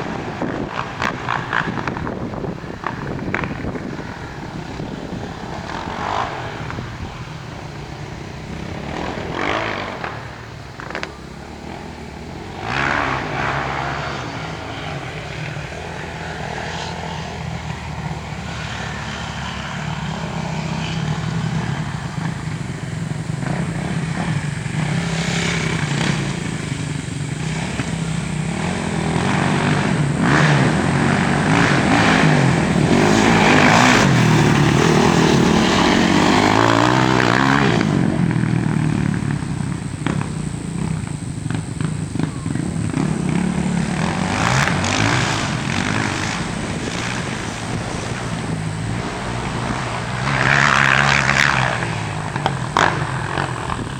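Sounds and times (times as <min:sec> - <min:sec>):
wind rushing: 0:00.0 - 0:10.5, 0:27.8 - 0:53.9
dirt bike engine running: 0:00.0 - 0:53.9.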